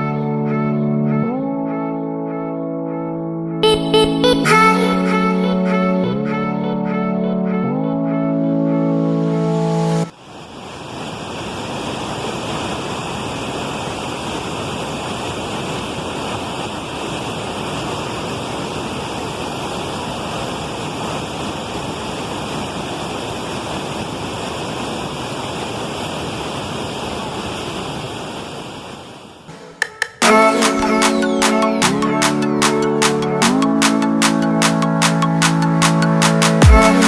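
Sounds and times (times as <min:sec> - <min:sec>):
brief music: 0:29.5 - 0:37.0.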